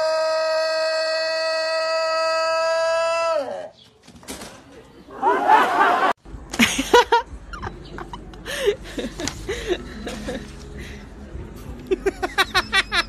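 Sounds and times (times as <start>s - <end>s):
person laughing: 11.9s - 13.0s.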